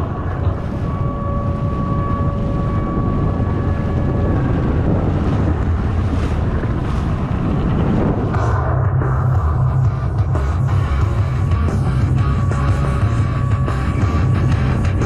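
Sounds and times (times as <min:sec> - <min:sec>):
rushing water: 0:00.0 - 0:08.7
jet ski engine: 0:00.0 - 0:15.0
steady whine: 0:00.0 - 0:15.0
wind buffeting microphone: 0:00.0 - 0:15.0.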